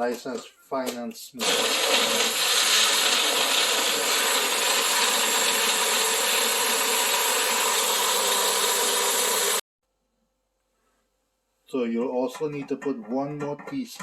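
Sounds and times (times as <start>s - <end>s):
blender motor running: 1.4s - 9.6s.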